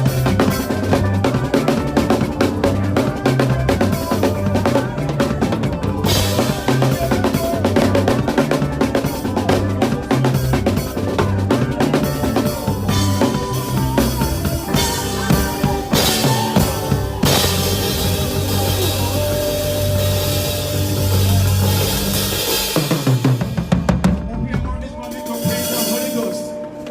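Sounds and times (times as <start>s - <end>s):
bass line: 0.0s - 26.9s
drum kit playing: 0.0s - 26.9s
cymbals: 12.0s - 24.1s, 24.8s - 26.9s.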